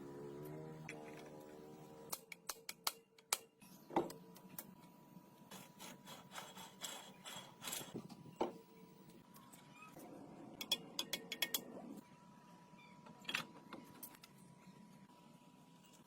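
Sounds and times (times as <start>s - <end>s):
hand tools clicking and tapping: 2.1s - 3.5s.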